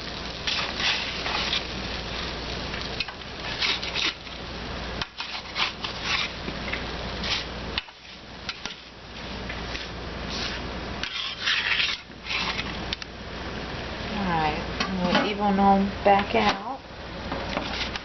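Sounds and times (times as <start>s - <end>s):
utensil scraping across baking pan: 0.4s - 1.8s, 3.0s - 4.4s, 5.0s - 6.4s, 7.2s - 8.9s, 9.7s - 12.7s, 17.6s - 18.0s.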